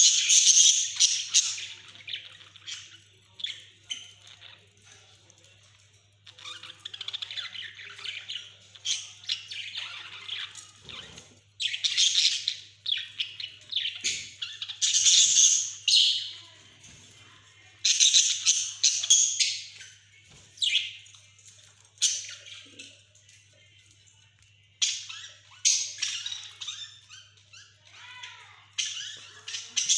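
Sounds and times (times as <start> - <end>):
budgerigars chattering and warbling: 0.0 - 2.9, 6.5 - 16.3, 17.9 - 19.8, 28.8 - 29.9.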